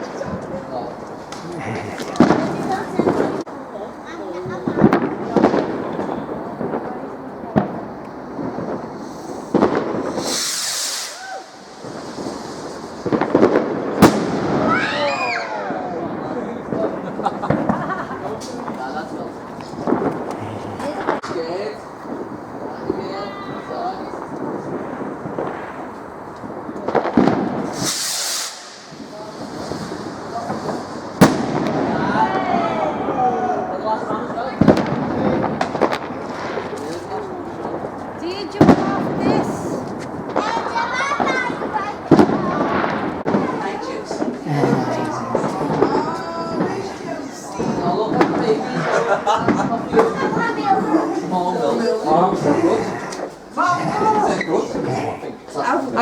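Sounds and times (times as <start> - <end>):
firework bangs: 0.0 - 56.0
firework hissing burst: 1.2 - 3.5, 7.6 - 15.6, 16.7 - 32.1, 34.6 - 48.7
high hiss: 8.9 - 13.2, 27.6 - 31.2.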